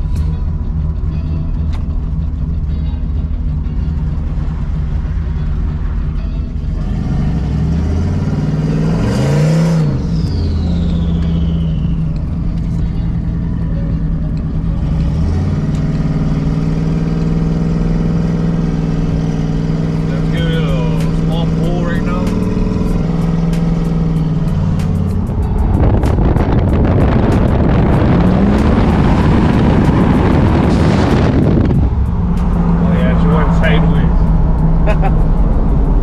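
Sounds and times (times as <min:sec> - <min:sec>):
pickup engine revving: 0:00.0 - 0:36.0
turbo air rush and whistle: 0:10.2 - 0:12.2.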